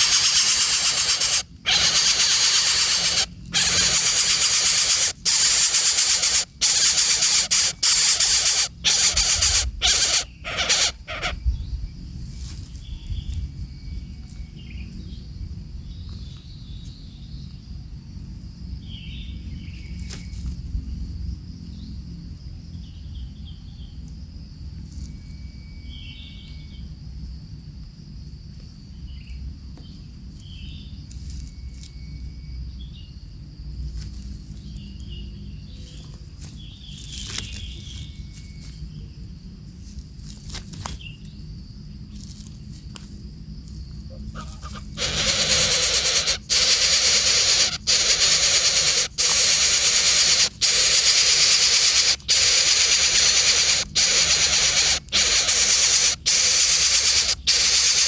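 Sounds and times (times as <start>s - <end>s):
loud hiss: 0.0s - 11.0s, 45.0s - 58.0s
bird chirps: 0.0s - 12.0s, 44.1s - 58.0s
high insect drone: 0.0s - 58.0s.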